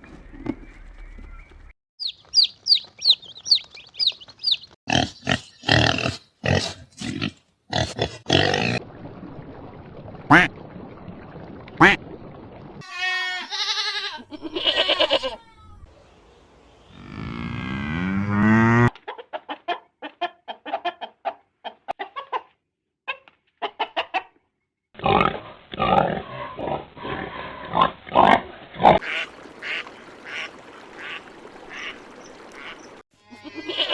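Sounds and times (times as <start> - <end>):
ducks quacking: 10.3 - 10.5, 11.8 - 12.0, 28.9 - 33.9.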